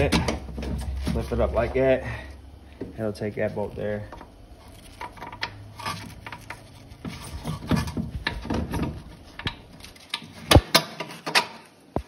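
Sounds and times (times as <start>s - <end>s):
metal parts clicking and scraping: 4.1s - 11.7s.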